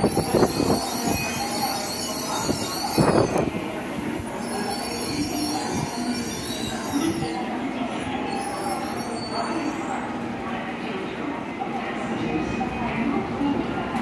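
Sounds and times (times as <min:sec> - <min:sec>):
high-pitched brake squeal: 0:00.0 - 0:03.5, 0:04.3 - 0:10.1.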